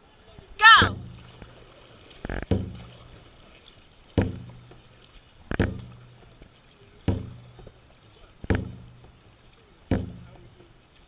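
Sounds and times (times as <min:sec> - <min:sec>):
dragon boat drum booms: 0:00.6 - 0:01.5, 0:02.5 - 0:03.0, 0:04.2 - 0:04.8, 0:05.5 - 0:06.3, 0:07.0 - 0:07.8, 0:08.4 - 0:09.2, 0:09.9 - 0:10.4.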